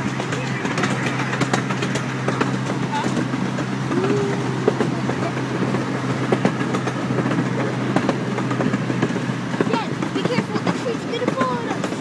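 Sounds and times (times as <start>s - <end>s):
ride train rolling on track: 0.0s - 12.0s
wheels clicking and rattling: 0.0s - 12.0s.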